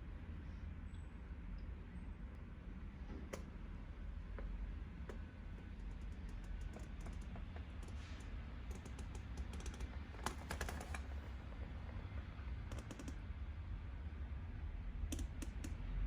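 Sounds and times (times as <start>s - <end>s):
steady low hum: 0.0s - 16.0s
small sharp clicks: 5.1s - 11.1s, 12.6s - 13.2s, 15.1s - 16.0s.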